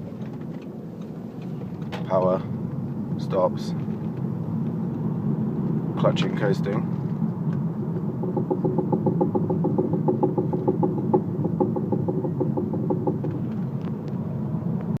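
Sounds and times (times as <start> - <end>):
car drone: 0.0 - 15.0
quick even knocking: 8.1 - 13.4.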